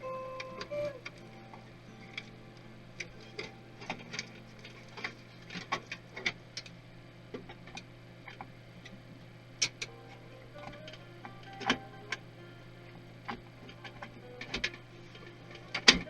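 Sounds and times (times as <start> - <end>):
steady low hum: 0.0 - 16.0
parts and tools clicking: 9.6 - 12.2, 13.2 - 16.0.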